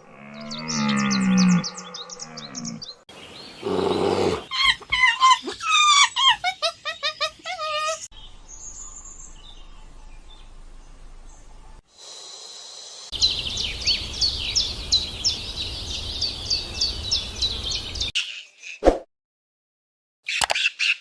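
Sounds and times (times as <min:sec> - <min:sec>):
bird chirping: 0:00.3 - 0:11.8, 0:13.1 - 0:18.8
background hiss: 0:11.9 - 0:18.1.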